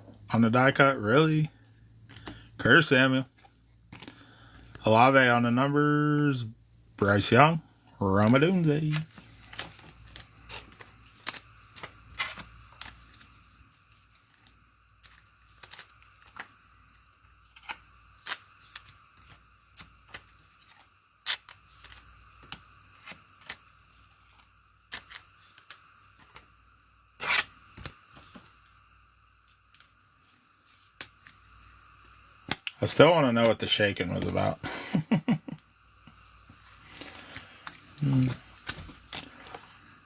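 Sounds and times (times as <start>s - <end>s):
cards and wrappers rustling: 0.6s - 4.6s, 8.2s - 26.5s, 36.5s - 39.9s
wrapper tearing: 8.8s - 13.3s, 14.0s - 16.5s, 17.5s - 25.8s, 27.2s - 27.9s.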